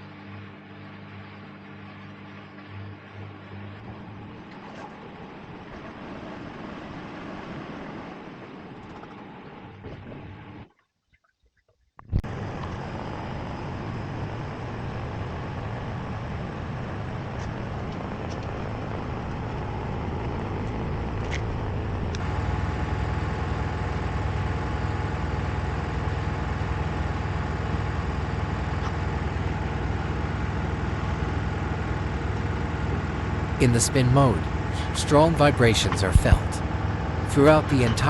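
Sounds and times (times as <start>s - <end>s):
washing machine spinning: 18.6s - 33.6s.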